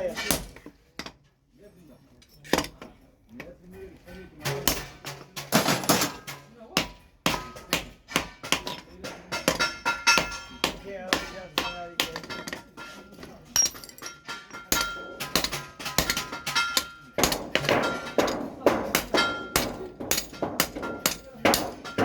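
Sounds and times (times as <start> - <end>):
hammer striking steel on anvil: 4.4 - 22.0.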